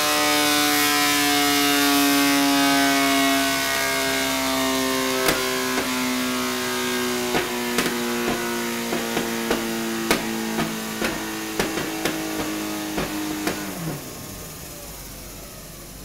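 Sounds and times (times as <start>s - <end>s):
motorcycle engine drone: 1.0s - 16.0s
sharp engine pops: 5.2s - 14.4s.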